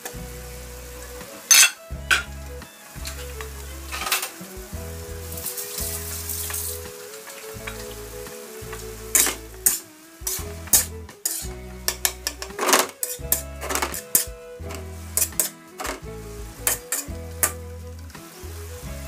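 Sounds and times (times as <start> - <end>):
food sizzling in a wok: 0.0 - 19.0
metal spatula scraping a wok: 9.2 - 16.0.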